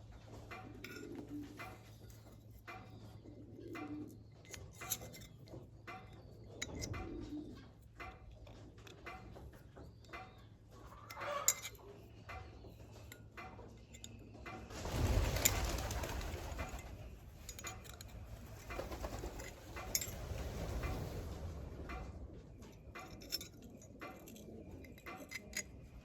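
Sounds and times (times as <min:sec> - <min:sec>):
dove cooing: 0:00.5 - 0:02.1, 0:02.7 - 0:04.7, 0:06.5 - 0:07.8, 0:23.7 - 0:26.0
metallic clicks of tools: 0:00.5 - 0:21.0, 0:22.6 - 0:26.0.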